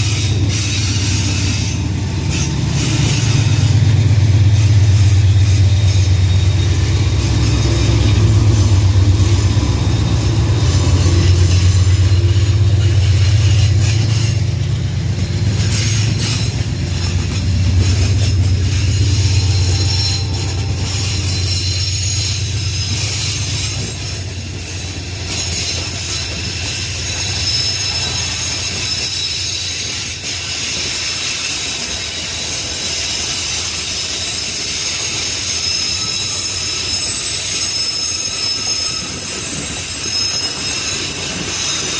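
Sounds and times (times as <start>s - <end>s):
diesel engine drone: 0.0s - 23.8s
freight wagon wheels squealing: 0.0s - 41.9s.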